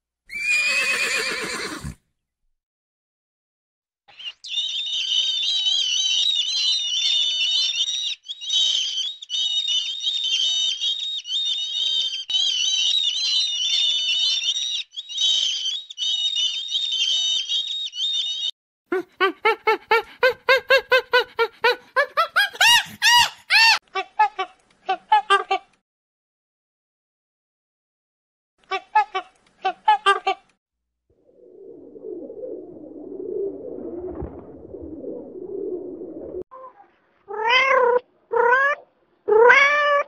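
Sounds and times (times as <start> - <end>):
birds chirping and twittering: 4.1 - 18.5.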